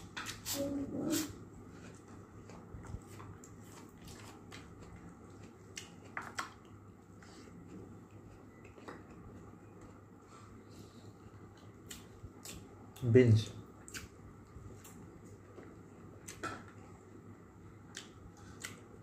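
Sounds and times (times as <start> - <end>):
crunchy vegetable chewing: 0.0 - 10.4
faint low hum: 0.0 - 19.0.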